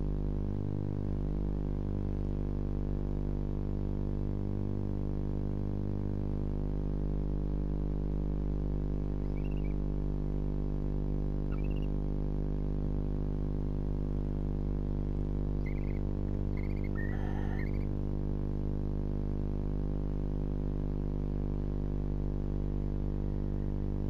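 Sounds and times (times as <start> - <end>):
electrical hum: 0.0 - 24.0
owl chirps: 9.2 - 9.8, 11.5 - 12.0, 15.6 - 17.9.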